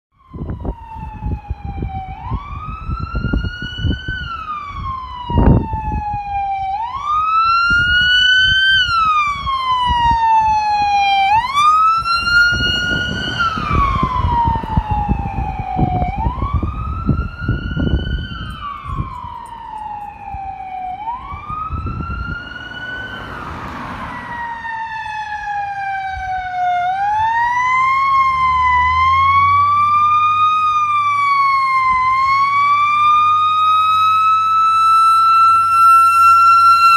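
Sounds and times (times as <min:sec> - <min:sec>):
emergency vehicle siren wailing: 0:00.1 - 0:36.9
heavy engine hum: 0:10.4 - 0:25.6.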